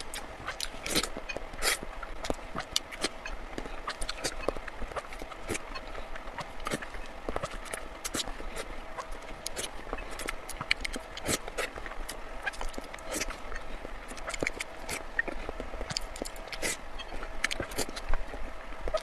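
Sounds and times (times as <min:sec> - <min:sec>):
wet chewing clicks: 0:00.0 - 0:19.0.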